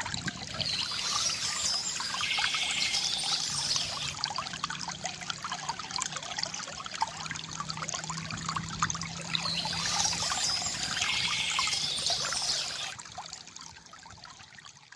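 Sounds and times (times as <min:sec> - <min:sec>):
water trickling from bamboo fountain: 0:00.0 - 0:14.9.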